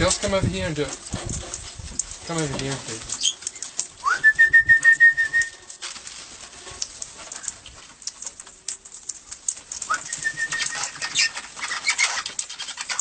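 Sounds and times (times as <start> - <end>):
parrots squawking and chattering: 3.0 - 4.0, 6.6 - 13.0
rising parrot whistle: 4.0 - 5.6, 9.9 - 11.3.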